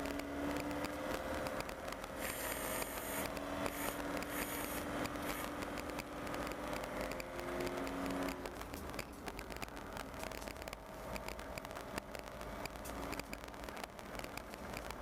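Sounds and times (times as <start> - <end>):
engine and drivetrain hum: 0.0 - 15.0
light crackling rattles: 0.0 - 15.0
road noise: 0.0 - 15.0.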